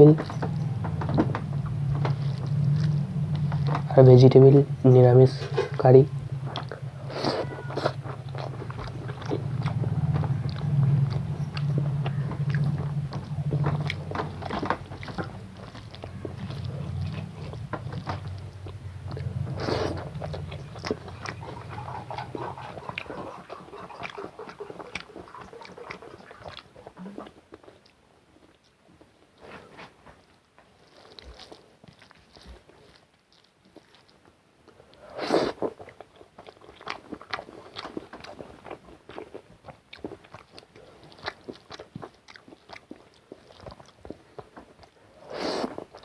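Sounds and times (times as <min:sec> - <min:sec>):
person chewing food: 0:00.0 - 0:04.6, 0:05.3 - 0:46.0
low steady hum: 0:00.0 - 0:46.0
wet smacking mouth sounds: 0:06.5 - 0:28.0.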